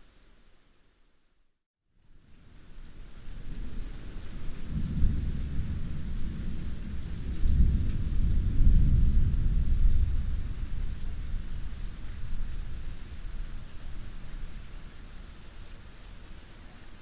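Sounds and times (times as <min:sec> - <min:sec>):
heavy rain: 0:02.0 - 0:17.0
deep rumble of thunder: 0:03.2 - 0:15.1.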